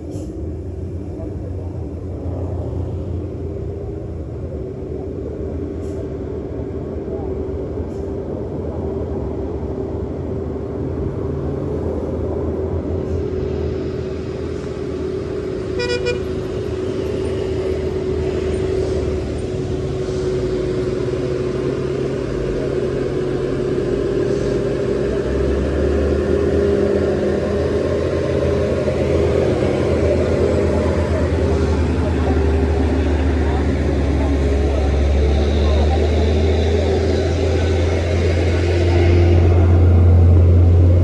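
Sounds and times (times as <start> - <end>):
truck engine whining: 8.4 - 41.0
short horn toot: 15.8 - 16.3.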